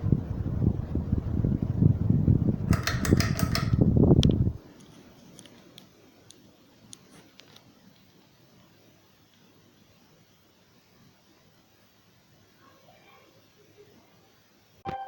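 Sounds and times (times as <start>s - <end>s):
fan draught buffeting microphone: 0.0s - 5.6s
run of clicks: 2.7s - 4.4s.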